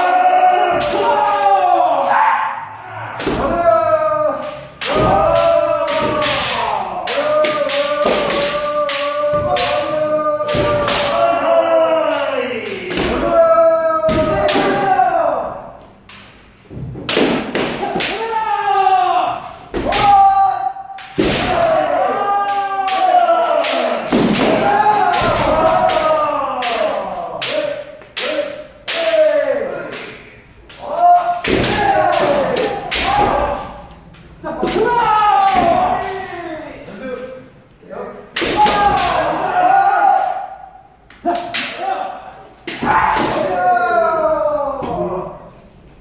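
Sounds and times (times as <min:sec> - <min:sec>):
people shouting: 0:00.0 - 0:16.0, 0:17.1 - 0:37.2, 0:38.2 - 0:45.7
bamboo swords striking armour: 0:17.0 - 0:18.2, 0:21.0 - 0:22.0, 0:22.9 - 0:29.3, 0:31.2 - 0:33.8.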